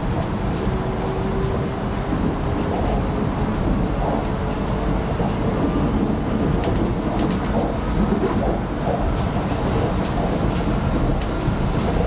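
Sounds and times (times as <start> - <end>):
train wheels rumbling on track: 0.0 - 12.0
sharp clicks: 6.6 - 7.7.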